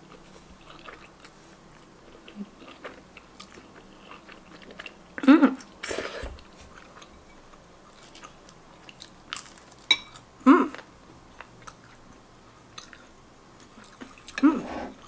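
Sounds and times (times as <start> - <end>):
wet chewing smacks and clicks: 8.1 - 9.6, 12.7 - 14.4.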